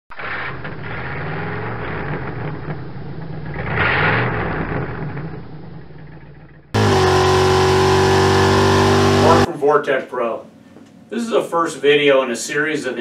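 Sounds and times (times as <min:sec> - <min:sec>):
car engine rumbling: 0:00.1 - 0:09.5.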